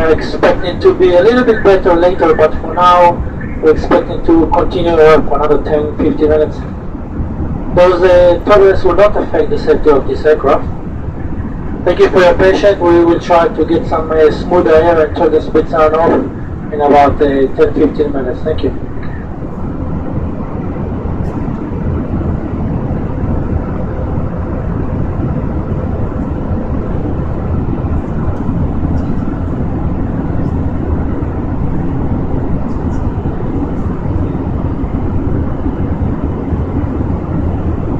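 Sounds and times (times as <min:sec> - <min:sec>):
jet cabin engine rush: 0:00.0 - 0:37.9.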